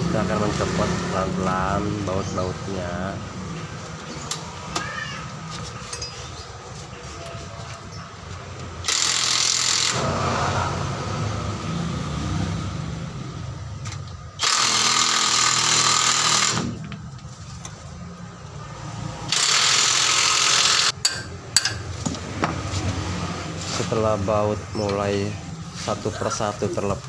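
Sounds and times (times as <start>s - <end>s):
impact wrench hammering: 19.3s - 22.2s.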